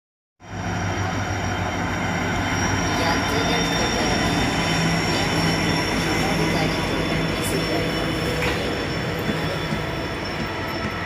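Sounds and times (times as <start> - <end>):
high-pitched whine: 0.4 - 11.0
train rumbling: 0.4 - 11.0.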